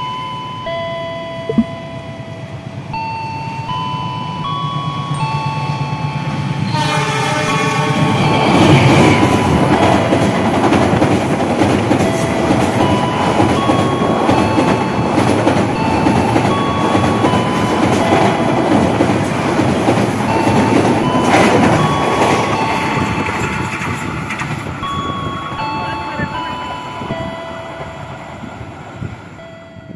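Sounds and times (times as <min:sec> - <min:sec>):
passenger train passing: 0:00.0 - 0:29.9
wheels clattering on rails: 0:07.6 - 0:29.9.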